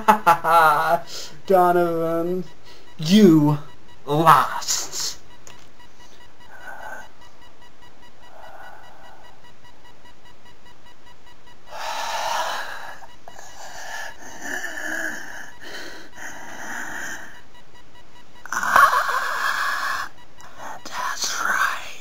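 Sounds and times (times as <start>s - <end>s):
person wheezing breaths: 11.7s - 17.4s, 18.5s - 20.1s.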